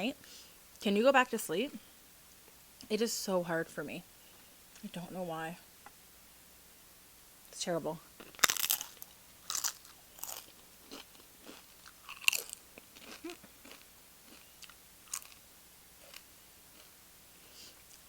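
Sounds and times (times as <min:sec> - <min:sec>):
crunchy chip bite: 0:08.2 - 0:15.4
chewing crunches: 0:08.2 - 0:17.0.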